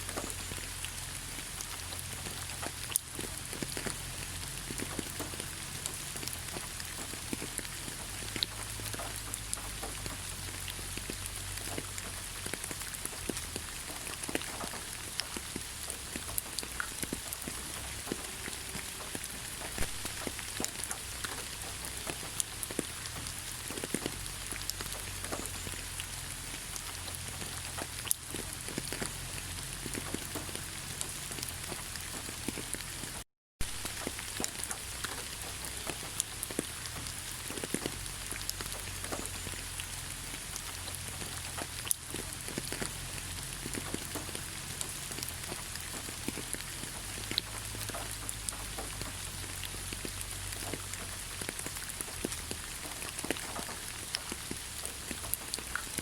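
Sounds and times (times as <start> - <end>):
raindrops ticking: 0.0 - 56.0
steady rain hiss: 0.0 - 56.0.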